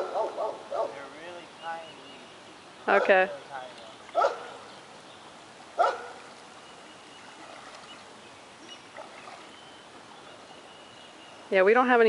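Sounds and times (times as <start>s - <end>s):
dog barking: 0.0s - 1.0s, 2.9s - 3.2s, 4.2s - 4.7s, 5.8s - 6.2s.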